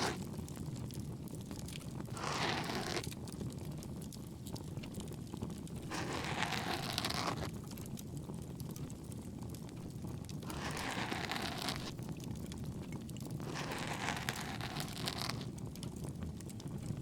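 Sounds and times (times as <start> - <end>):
ear pick scratching: 0.0 - 0.2, 2.1 - 3.1, 5.8 - 7.5, 10.5 - 11.9, 13.4 - 15.5
bonfire crackling: 0.0 - 2.2, 3.0 - 6.2, 7.4 - 10.7, 11.4 - 17.0.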